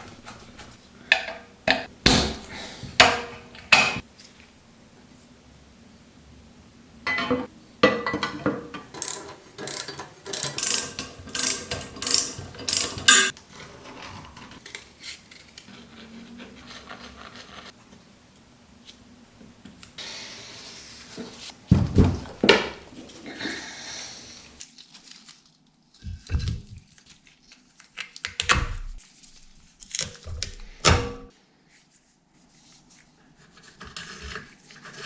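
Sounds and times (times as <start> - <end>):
handling metal parts: 7.1 - 15.4
hand tool clicks and scrapes on metal: 8.7 - 13.4.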